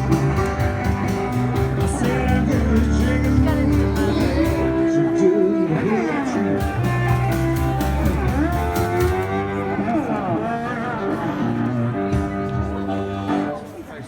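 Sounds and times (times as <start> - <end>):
sliding melody line: 0.0 - 5.6, 6.6 - 10.0
plucked string instrument: 0.0 - 14.0.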